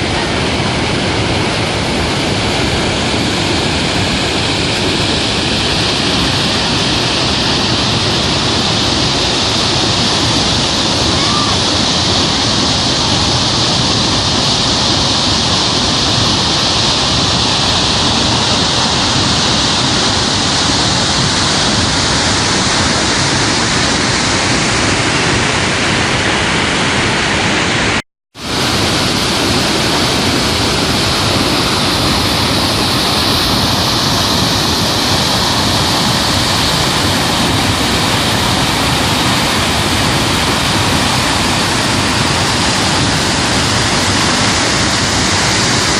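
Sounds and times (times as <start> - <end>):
rush of falling water: 0.0 - 45.9.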